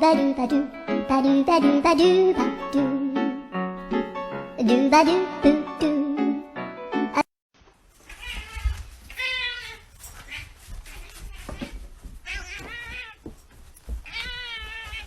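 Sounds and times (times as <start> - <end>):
cat meowing: 8.1 - 13.2, 14.0 - 15.0.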